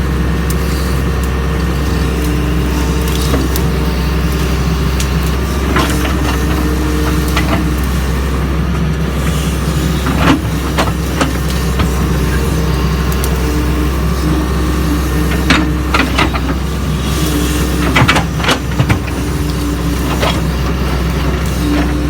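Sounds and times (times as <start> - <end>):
engine whine: 0.0 - 22.0
excavator diesel engine running: 0.0 - 22.0.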